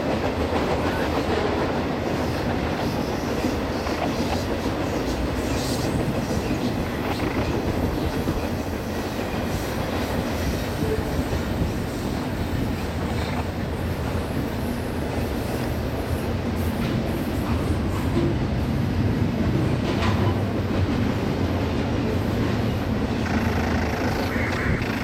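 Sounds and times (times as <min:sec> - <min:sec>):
steel wheels rumbling on rail: 0:00.0 - 0:25.0
high-pitched noise: 0:23.2 - 0:25.0.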